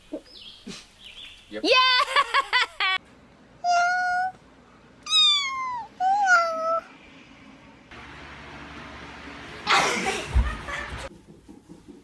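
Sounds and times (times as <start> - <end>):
cat meowing: 5.1 - 6.8.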